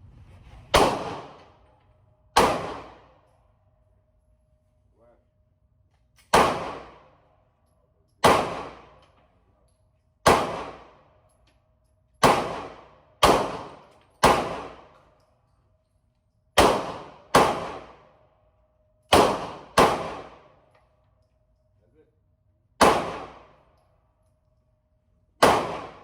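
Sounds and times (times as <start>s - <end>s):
gunshots with echo: 0.7s - 1.6s, 2.4s - 3.2s, 6.3s - 7.1s, 8.2s - 9.0s, 10.2s - 11.0s, 12.2s - 14.9s, 16.6s - 18.0s, 19.1s - 20.5s, 22.8s - 23.6s, 25.4s - 26.0s.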